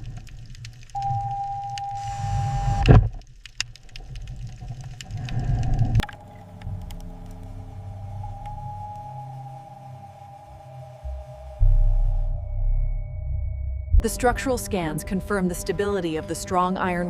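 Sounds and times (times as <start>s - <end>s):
low rumble: 5.1s - 17.0s.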